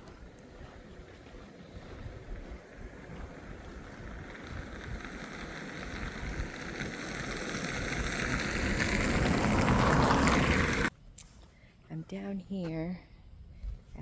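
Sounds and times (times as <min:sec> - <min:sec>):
car tyre noise approaching: 0:00.0 - 0:11.0.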